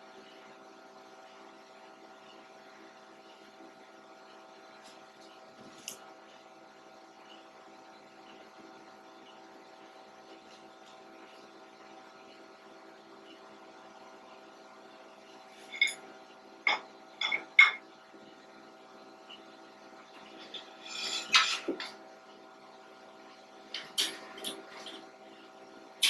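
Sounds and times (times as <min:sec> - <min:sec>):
electrical hum: 0:00.0 - 0:26.0
metal parts rattling: 0:20.4 - 0:21.9.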